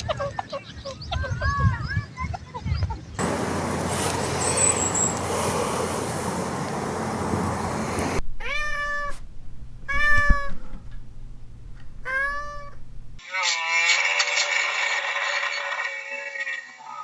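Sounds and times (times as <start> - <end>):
noisy rumble: 3.2 - 13.2
cat meowing: 8.4 - 9.2, 9.8 - 10.8, 12.0 - 12.8.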